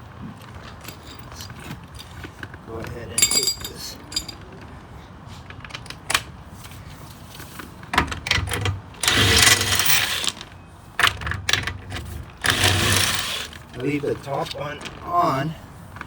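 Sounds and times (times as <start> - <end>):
power tool spinning lug bolts: 8.4 - 10.5, 11.7 - 14.0.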